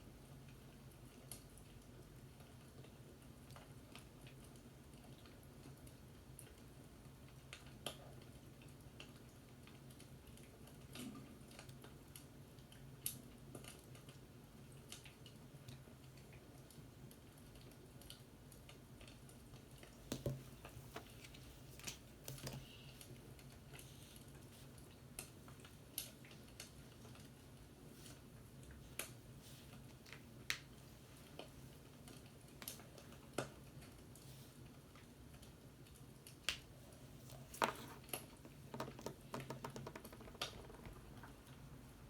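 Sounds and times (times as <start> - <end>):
faint clicks and taps: 14.8 - 34.2, 34.9 - 41.7.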